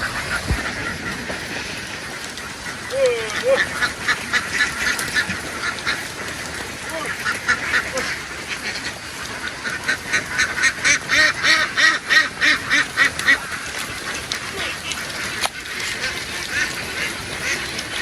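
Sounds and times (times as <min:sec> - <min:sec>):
ducks quacking: 0:00.0 - 0:18.0.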